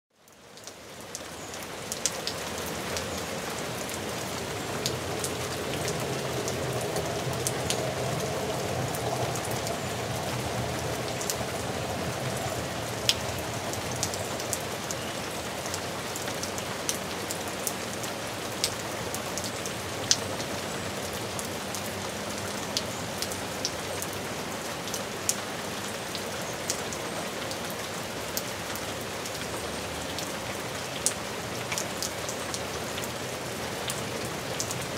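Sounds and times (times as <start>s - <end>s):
steady rain: 0.1s - 34.9s
raindrops tapping: 0.3s - 17.0s.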